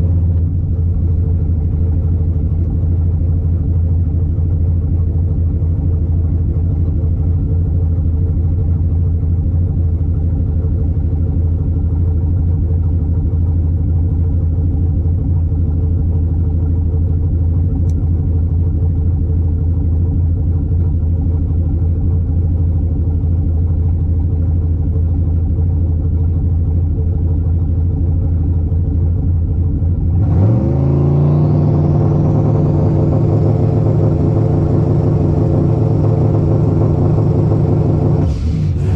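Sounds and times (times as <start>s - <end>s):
truck engine revving: 30.1s - 38.9s.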